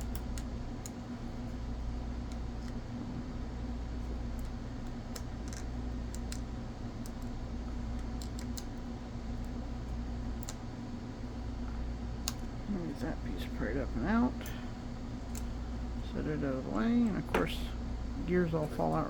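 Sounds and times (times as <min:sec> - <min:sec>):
steady low hum: 0:00.0 - 0:19.0
small clicks and taps of pry tool: 0:04.3 - 0:08.8, 0:10.4 - 0:10.6, 0:12.2 - 0:12.5.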